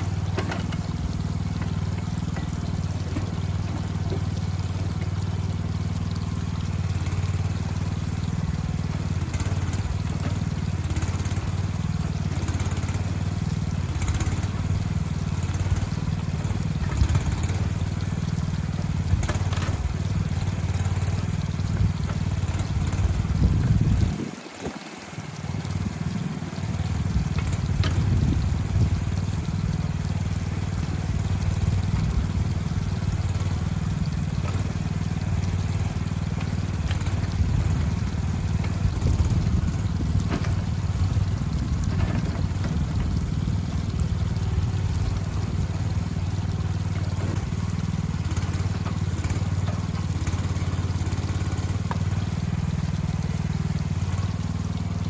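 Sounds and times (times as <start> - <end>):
heavy machine engine running: 0.0 - 55.0.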